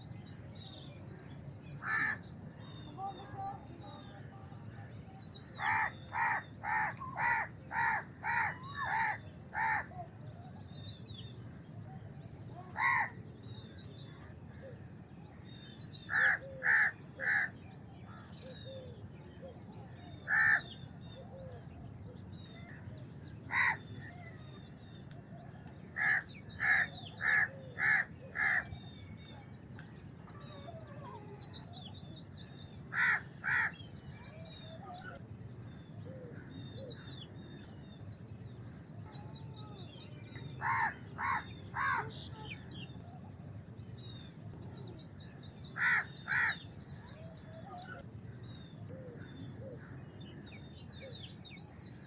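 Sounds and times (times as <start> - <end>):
small birds twittering: 0.0 - 52.0
crows cawing: 1.8 - 2.2, 5.6 - 9.9, 12.8 - 13.1, 16.1 - 17.6, 20.3 - 20.7, 23.5 - 23.8, 26.0 - 28.7, 32.9 - 33.8, 40.6 - 42.2, 45.8 - 46.6.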